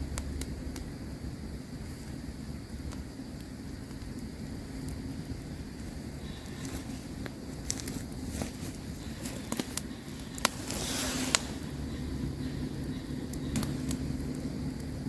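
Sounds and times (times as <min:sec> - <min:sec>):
campfire crackling and popping: 0:00.0 - 0:15.0
short hiss: 0:08.0 - 0:12.6.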